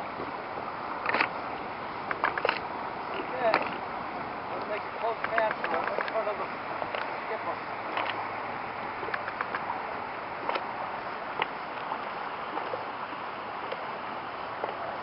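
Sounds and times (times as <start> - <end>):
outdoor wind: 0.0 - 15.0
small waves lapping: 0.0 - 15.0
light clicks and ticks: 4.6 - 7.2, 9.1 - 9.7.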